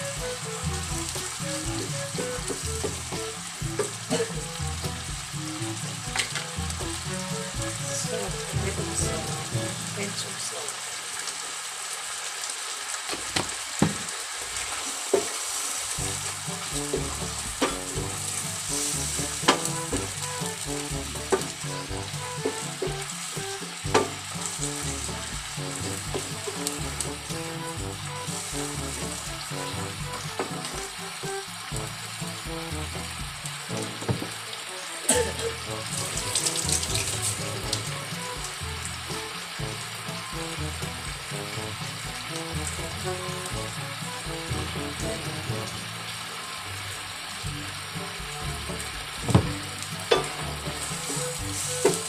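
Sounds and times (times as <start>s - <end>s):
background music with bass line: 0.0s - 10.1s, 16.0s - 34.5s, 35.1s - 52.0s
chicken sizzling in a pan: 0.0s - 52.0s
wooden spatula stirring: 15.1s - 23.3s
sharp knocks: 23.9s - 24.2s.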